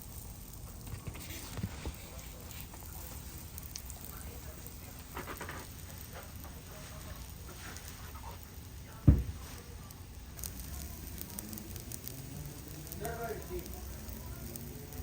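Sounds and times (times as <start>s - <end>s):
fire crackling: 0.0s - 15.0s
loud dull thump: 9.0s - 9.4s.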